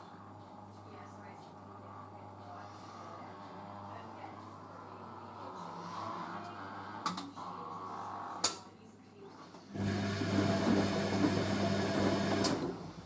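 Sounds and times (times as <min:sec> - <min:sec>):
washing machine humming and rushing: 0:09.6 - 0:13.0.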